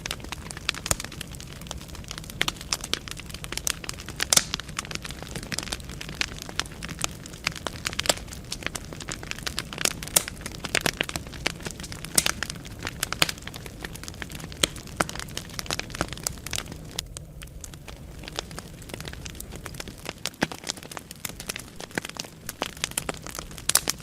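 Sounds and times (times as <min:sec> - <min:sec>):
low rumble of flames: 0:00.0 - 0:24.0
wood fire crackling: 0:00.0 - 0:24.0.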